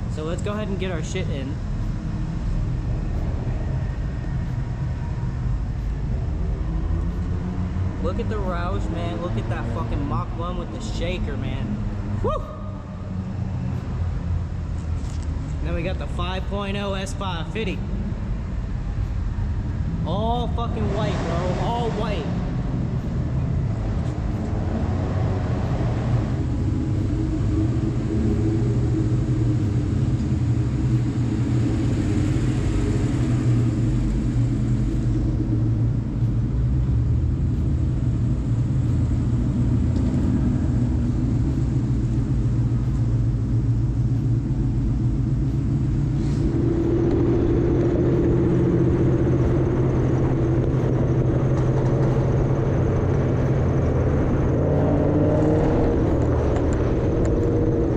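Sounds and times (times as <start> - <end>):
car engines rumbling: 0.0 - 57.9
another engine note: 19.8 - 57.9.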